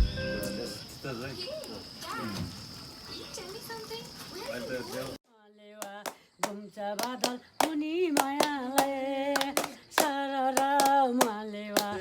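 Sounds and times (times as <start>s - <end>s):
hand claps: 5.8s - 12.0s.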